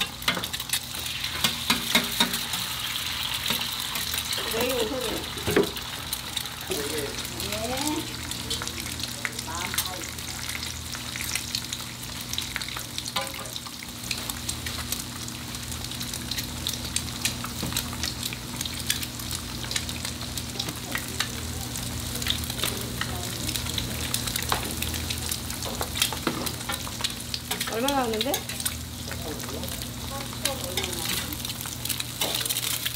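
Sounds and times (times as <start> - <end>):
food sizzling on a griddle: 0.0 - 32.9.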